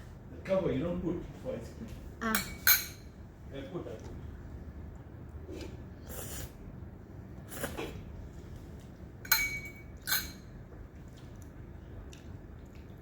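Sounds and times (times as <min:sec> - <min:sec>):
utensil clinking against dish: 0:02.2 - 0:03.1, 0:09.2 - 0:10.5
tableware scraping: 0:09.3 - 0:10.5.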